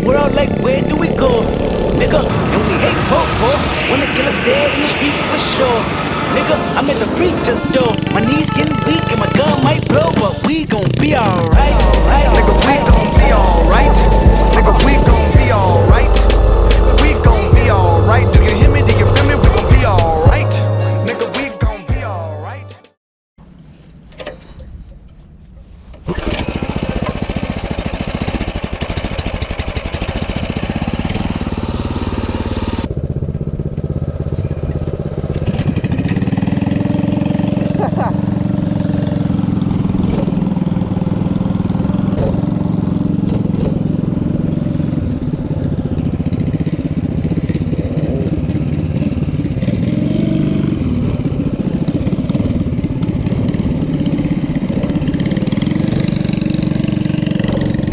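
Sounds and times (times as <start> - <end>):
small engine running: 0.0 - 20.5, 26.1 - 57.9.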